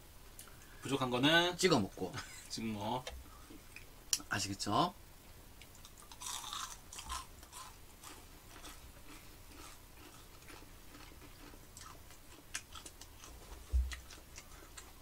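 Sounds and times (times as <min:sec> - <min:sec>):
people chewing crunchy food: 0:05.6 - 0:15.0.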